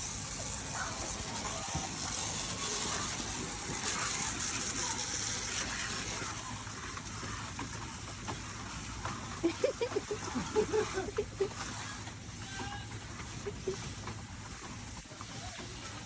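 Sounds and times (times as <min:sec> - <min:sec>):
water rushing spray: 0:00.0 - 0:12.1.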